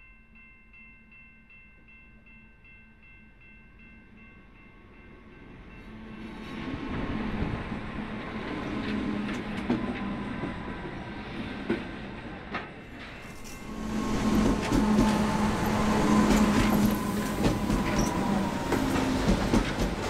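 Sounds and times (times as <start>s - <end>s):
diesel locomotive engine drone: 5.4s - 20.0s
wagons rolling with wheel clicks: 13.0s - 20.0s.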